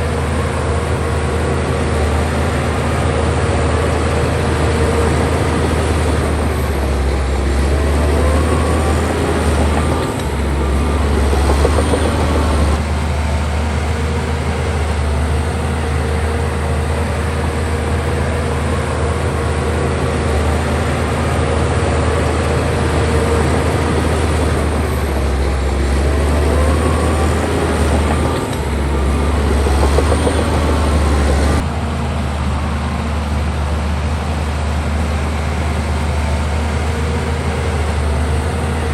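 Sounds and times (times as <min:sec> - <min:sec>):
bulldozer diesel engine under load: 0:00.0 - 0:38.9.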